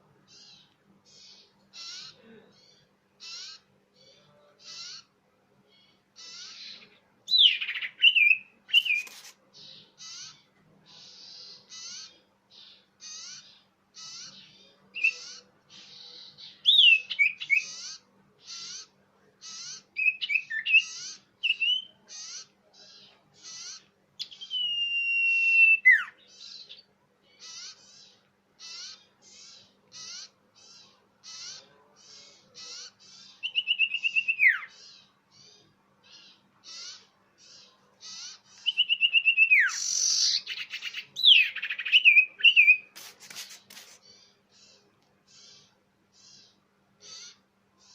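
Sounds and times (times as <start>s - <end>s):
bird whistles: 24.2s - 26.2s, 38.6s - 42.9s
short scratchy bird notes: 42.5s - 44.1s.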